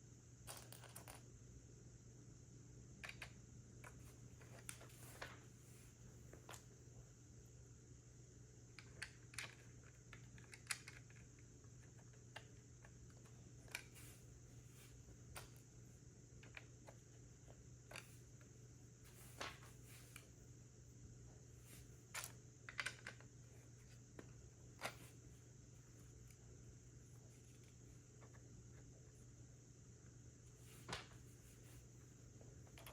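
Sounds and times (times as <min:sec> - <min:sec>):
faint steady hum: 0:00.0 - 0:32.9
plastic pieces clicking together: 0:08.8 - 0:12.5, 0:22.1 - 0:23.3.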